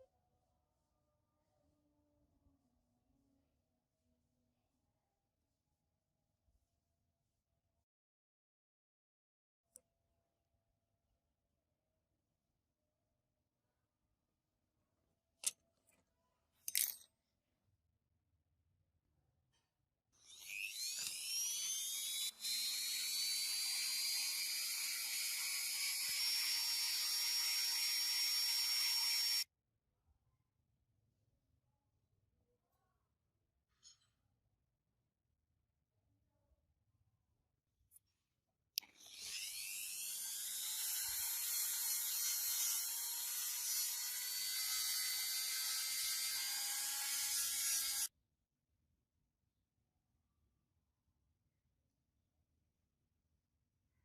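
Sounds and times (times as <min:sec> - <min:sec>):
small electric tool motor whine: 0:20.2 - 0:29.5, 0:38.9 - 0:48.1.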